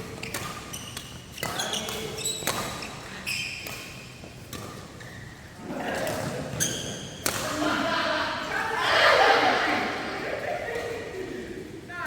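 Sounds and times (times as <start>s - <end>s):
rackets striking shuttlecock: 0.0s - 5.1s, 7.2s - 7.6s
shoes squeaking on court floor: 0.0s - 7.4s.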